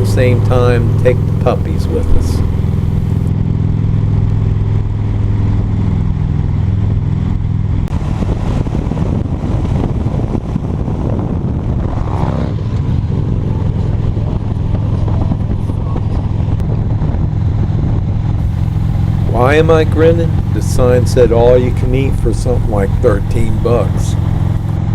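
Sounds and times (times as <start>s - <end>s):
motorcycle engine running: 0.0s - 3.3s, 18.4s - 24.9s
road and wind noise: 0.0s - 24.9s.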